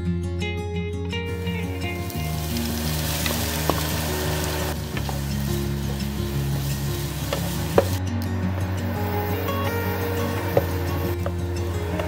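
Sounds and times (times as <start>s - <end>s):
food sizzling in a frying pan: 1.3s - 8.0s
wooden spatula stirring: 1.9s - 8.0s.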